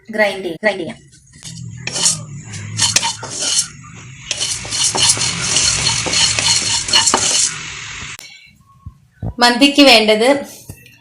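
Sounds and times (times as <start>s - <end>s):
spoon stirring spices in a pan: 1.4s - 8.1s.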